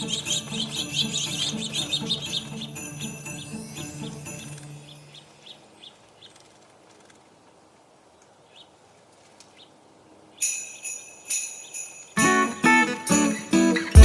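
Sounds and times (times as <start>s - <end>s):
christmas music with sleigh bells: 0.0s - 5.4s, 10.4s - 14.0s
small birds chirping: 0.0s - 7.4s, 8.1s - 10.9s.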